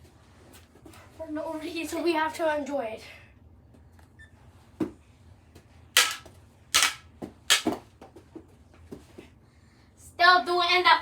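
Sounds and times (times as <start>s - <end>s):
hockey sticks striking ball: 6.0s - 7.8s.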